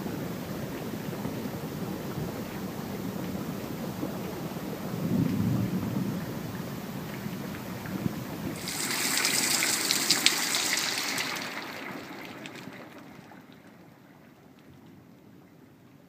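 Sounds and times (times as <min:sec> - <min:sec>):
heavy rain splashing: 0:00.1 - 0:14.9
water dripping and trickling: 0:05.8 - 0:15.6.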